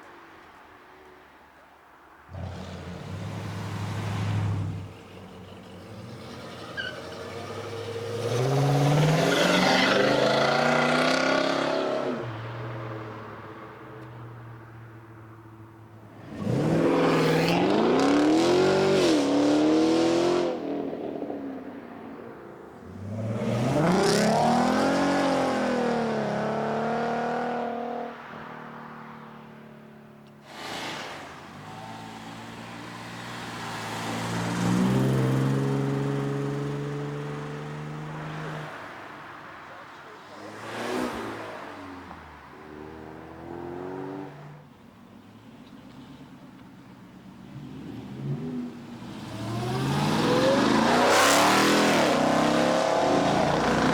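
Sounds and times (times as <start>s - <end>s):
car engine accelerating hard: 2.3s - 12.2s, 30.8s - 38.5s, 47.5s - 53.9s.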